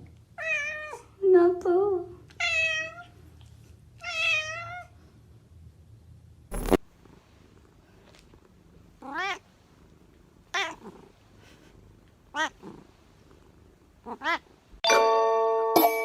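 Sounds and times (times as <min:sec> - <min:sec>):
cat meowing: 0:04.0 - 0:04.8, 0:09.0 - 0:09.4.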